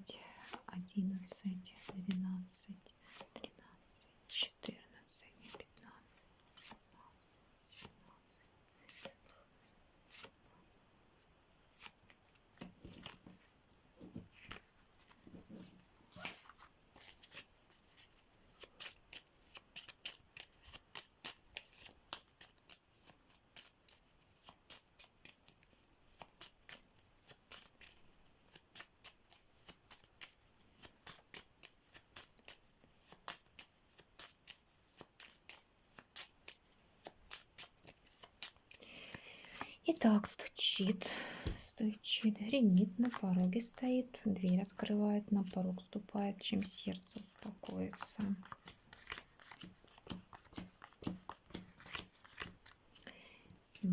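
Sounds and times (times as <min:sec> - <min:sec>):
playing cards being shuffled: 0:06.5 - 0:06.8, 0:07.6 - 0:08.0, 0:08.8 - 0:09.3, 0:10.0 - 0:10.4, 0:11.7 - 0:39.7, 0:42.2 - 0:53.0.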